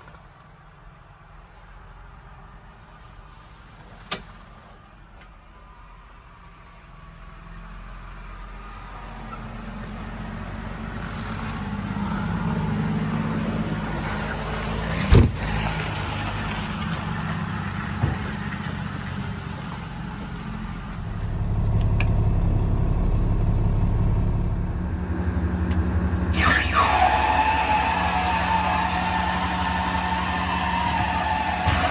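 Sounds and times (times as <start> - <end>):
diesel truck engine running: 8.0 - 31.9.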